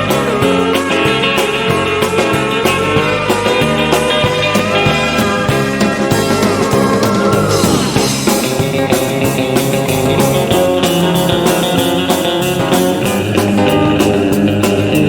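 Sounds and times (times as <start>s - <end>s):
rock band playing: 0.0s - 15.0s
electric guitar note sliding down: 2.9s - 9.9s.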